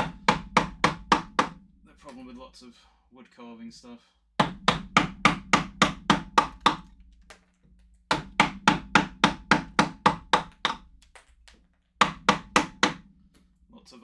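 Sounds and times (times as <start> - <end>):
mallet striking chisel into wood: 0.0 - 2.2, 4.4 - 7.4, 8.1 - 13.4.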